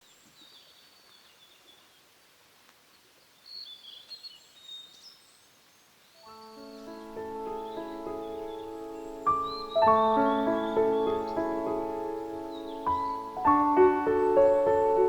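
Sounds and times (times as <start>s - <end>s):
faint outdoor hiss: 0.0s - 15.0s
small birds chirping: 0.0s - 15.0s.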